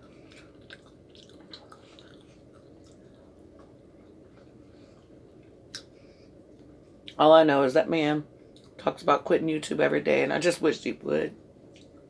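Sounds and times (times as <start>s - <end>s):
chewing and mouth clicks: 0.0s - 5.9s, 8.5s - 8.8s, 11.7s - 12.0s.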